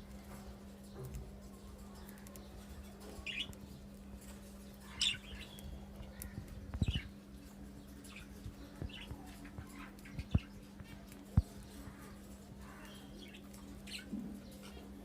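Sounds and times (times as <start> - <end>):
steady low hum: 0.0 - 15.0
parrots chirping: 4.2 - 7.1.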